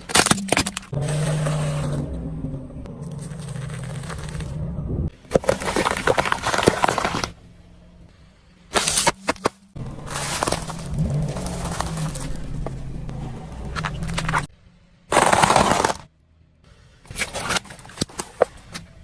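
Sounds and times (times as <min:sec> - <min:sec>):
objects cracking under car tyres: 0:00.0 - 0:02.0, 0:03.0 - 0:07.4, 0:08.7 - 0:14.5, 0:15.1 - 0:16.1
low engine hum: 0:00.8 - 0:08.7, 0:09.4 - 0:15.1.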